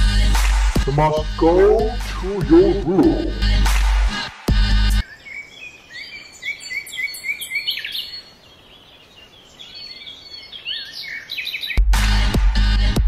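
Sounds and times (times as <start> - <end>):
small birds chirping: 5.0 - 11.9.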